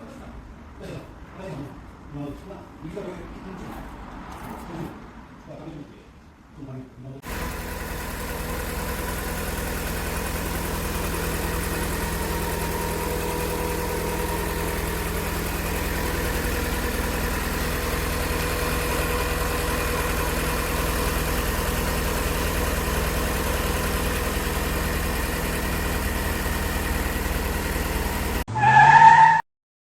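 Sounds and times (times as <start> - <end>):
car engine idling: 7.2 - 28.5.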